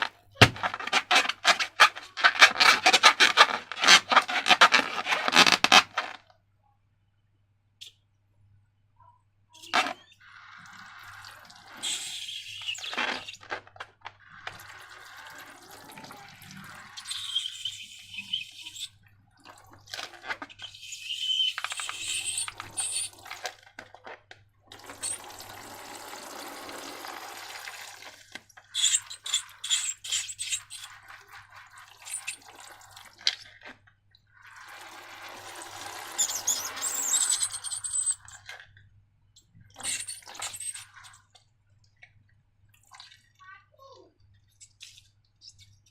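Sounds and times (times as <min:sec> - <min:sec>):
slime pouring and squelching: 0:00.0 - 0:06.2, 0:09.7 - 0:18.4, 0:24.7 - 0:38.7.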